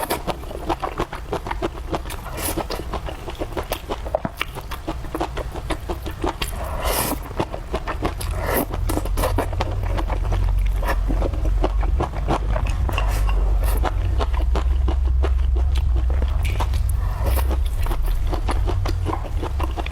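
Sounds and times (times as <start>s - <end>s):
chewing crunches: 0.0s - 19.9s
steady low rumble: 0.0s - 19.9s
utensils scraping on a dish: 12.7s - 13.8s.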